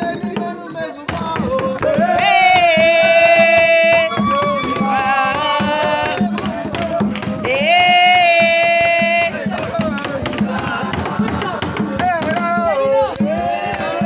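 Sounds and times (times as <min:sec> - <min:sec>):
steady drum beat: 0:00.0 - 0:14.0
person singing long notes: 0:01.8 - 0:09.5.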